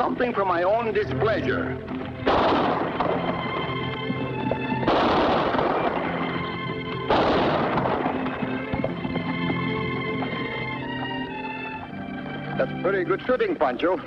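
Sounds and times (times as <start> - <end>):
gunshots echoing: 2.2 - 10.8.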